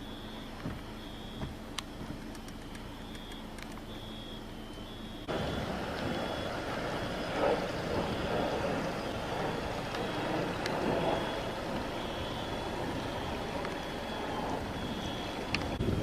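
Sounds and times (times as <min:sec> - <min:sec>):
high electronic beeps: 0:00.0 - 0:09.4, 0:10.0 - 0:15.8
low hum: 0:00.0 - 0:16.0
sharp clicks: 0:00.6 - 0:04.1, 0:15.4 - 0:15.8
loud rumbling noise: 0:04.8 - 0:16.0.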